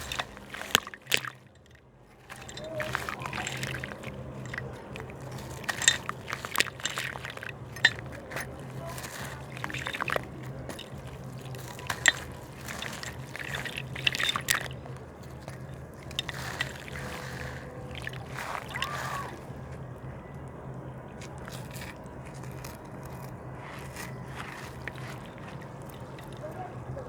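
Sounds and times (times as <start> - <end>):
slab crumbling and crackling: 0.0 - 19.8, 21.2 - 27.0
water sloshing and trickling: 0.0 - 27.0.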